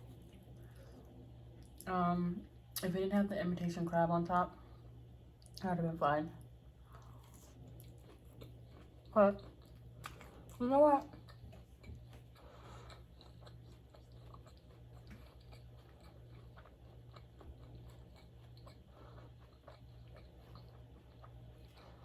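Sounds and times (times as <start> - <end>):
steady low hum: 0.0 - 22.0
chewing food: 6.4 - 22.0.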